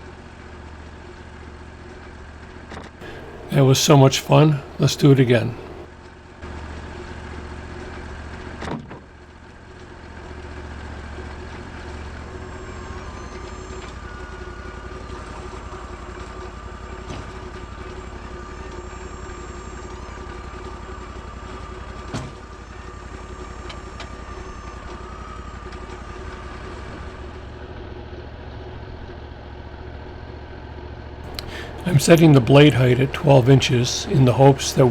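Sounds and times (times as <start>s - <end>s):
sawmill engine running: 3.0s - 5.8s, 31.3s - 34.9s.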